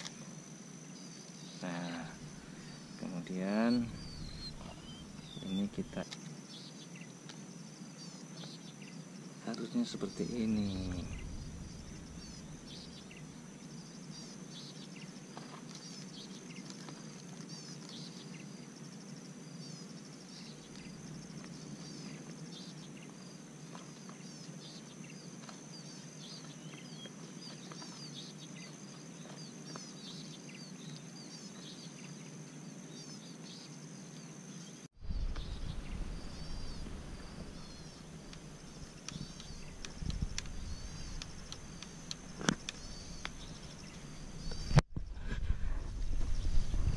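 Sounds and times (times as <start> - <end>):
high-pitched insect drone: 0.0 - 16.3, 35.1 - 44.8
low rumble: 3.8 - 5.5, 10.6 - 13.6, 35.0 - 46.9.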